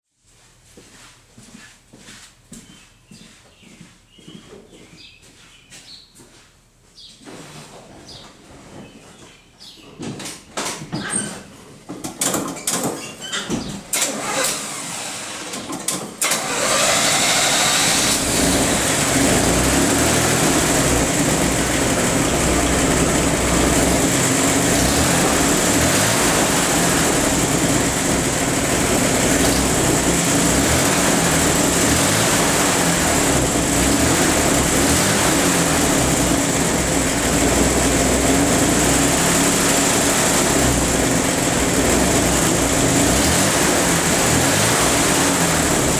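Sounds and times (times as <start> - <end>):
car engine starting and idling: 13.8 - 45.9.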